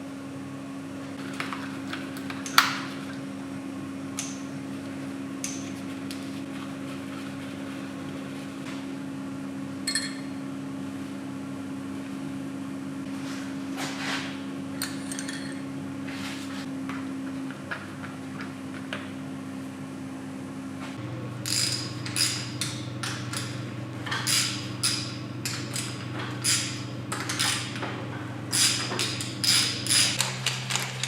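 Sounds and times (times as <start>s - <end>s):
electric motor hum: 16.7s - 31.0s.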